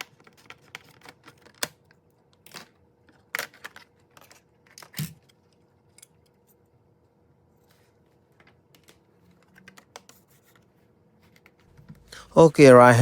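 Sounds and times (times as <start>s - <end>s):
plastic parts clicking and rattling: 0.0s - 6.3s.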